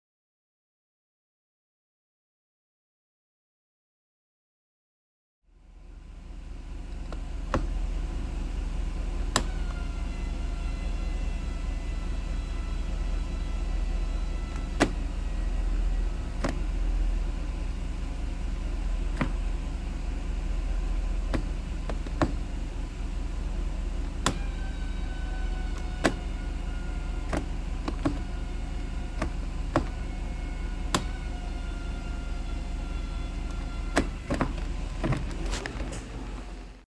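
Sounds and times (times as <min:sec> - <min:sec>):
low engine rumble: 0:05.5 - 0:36.9
transmission squealing: 0:09.0 - 0:17.7, 0:19.0 - 0:36.1.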